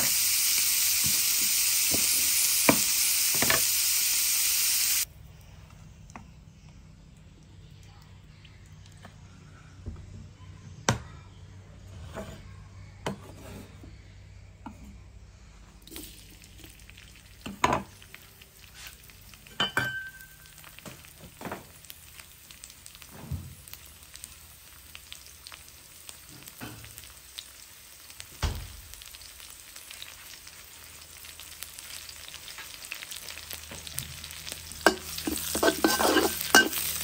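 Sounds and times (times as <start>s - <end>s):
garlic sizzling in hot oil: 0.0s - 5.1s, 15.9s - 37.0s.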